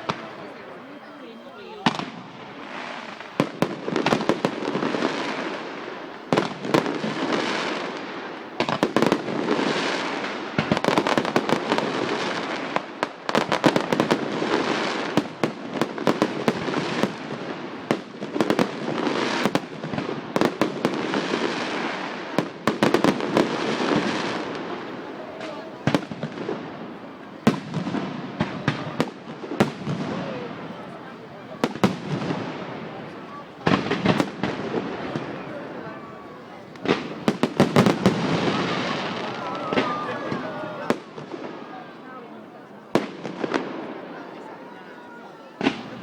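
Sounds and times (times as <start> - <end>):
fireworks bangs: 0.0 - 46.0.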